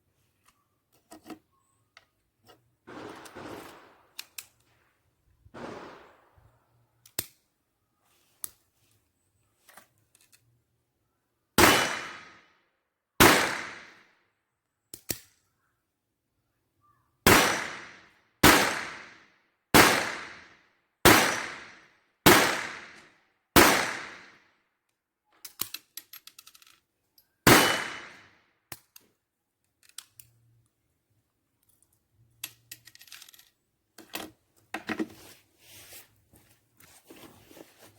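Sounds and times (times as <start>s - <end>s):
pistol shots: 2.9s - 4.2s, 5.6s - 6.4s, 11.6s - 12.4s, 13.2s - 14.0s, 17.3s - 23.0s, 23.6s - 24.3s, 27.4s - 28.2s
gun handling clicks: 4.1s - 4.7s, 7.0s - 7.4s, 9.7s - 10.5s, 14.9s - 15.4s, 25.4s - 27.9s, 28.7s - 30.7s, 31.6s - 34.3s.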